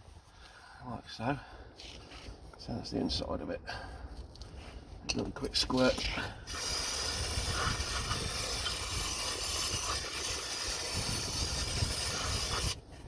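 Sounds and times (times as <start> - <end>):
aerosol spray hissing: 6.5 - 12.8.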